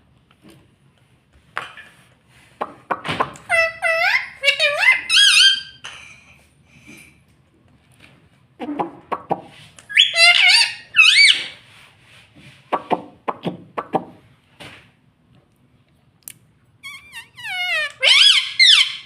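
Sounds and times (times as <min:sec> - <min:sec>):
parakeet chattering: 0:03.4 - 0:05.8, 0:09.9 - 0:11.5, 0:16.8 - 0:19.0
parakeet squeaky calls: 0:03.5 - 0:05.8, 0:09.9 - 0:11.6, 0:16.8 - 0:19.0.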